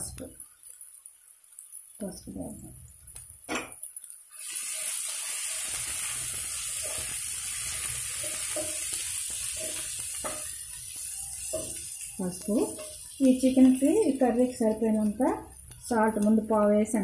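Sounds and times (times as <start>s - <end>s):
onions sizzling in hot oil: 0.0s - 17.0s
spoon scraping and tapping pan: 6.8s - 13.2s.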